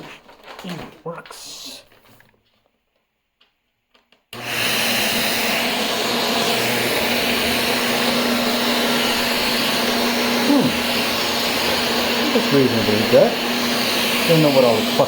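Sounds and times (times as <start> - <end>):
vacuum cleaner running: 4.4 - 15.0.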